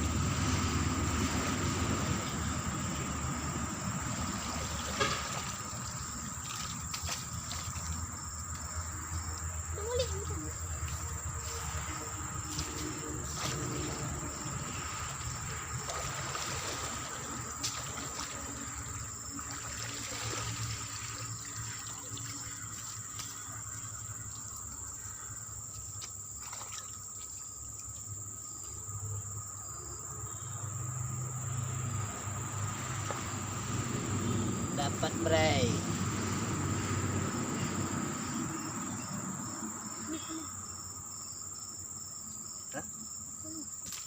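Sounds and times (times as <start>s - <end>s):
water trickling and splashing: 0.0s - 28.2s
insects droning: 0.0s - 44.0s.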